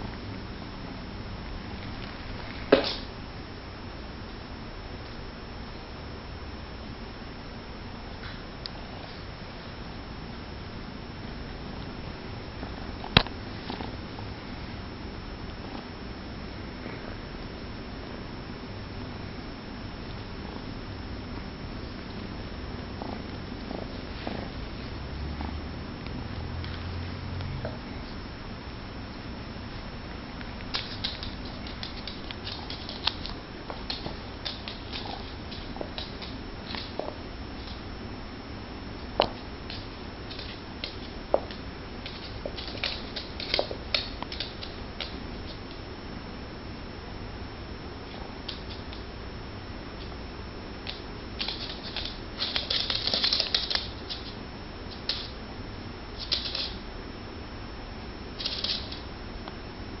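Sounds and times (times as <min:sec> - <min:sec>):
paws and claws scuffling: 0:30.6 - 0:37.9
animals scuffling with taps and thumps: 0:30.7 - 0:37.8, 0:39.2 - 0:45.6, 0:50.8 - 0:55.4.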